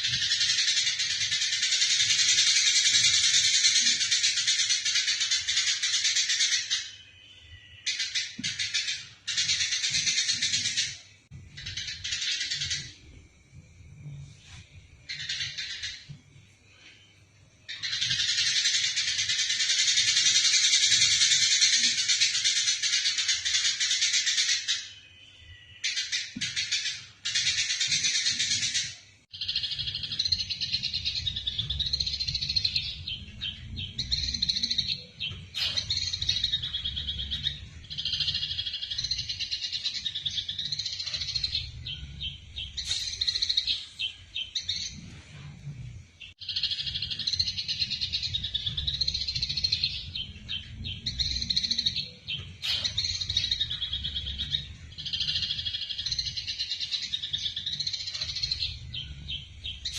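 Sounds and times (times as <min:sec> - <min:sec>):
sparrows chattering: 0:00.0 - 0:13.1, 0:15.0 - 0:16.1, 0:17.7 - 0:59.9.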